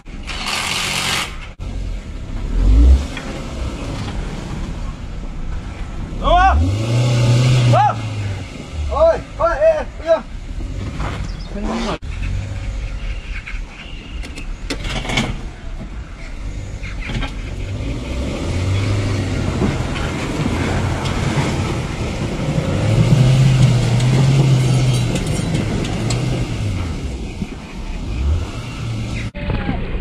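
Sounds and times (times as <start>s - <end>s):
car engine revving under load: 0.0s - 9.6s, 16.3s - 29.4s.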